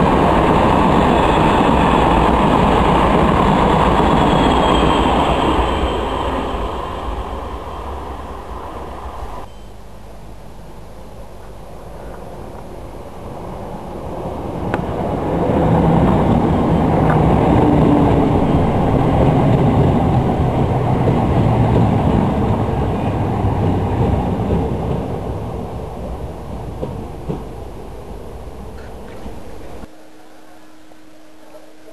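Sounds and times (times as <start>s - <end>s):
electric train rumbling: 0.0s - 31.9s.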